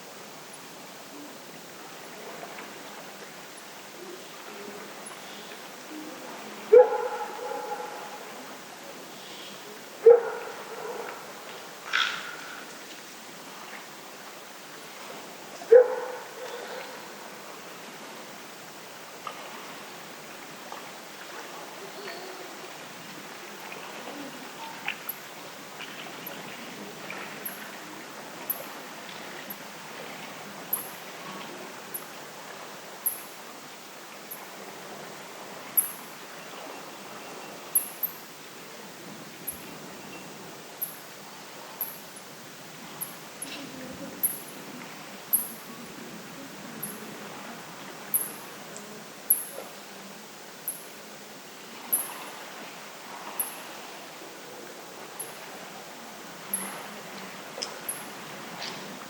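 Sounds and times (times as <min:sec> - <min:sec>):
wind: 0:00.0 - 0:59.0
dog barking: 0:06.7 - 0:08.2, 0:10.0 - 0:11.2, 0:15.7 - 0:17.0.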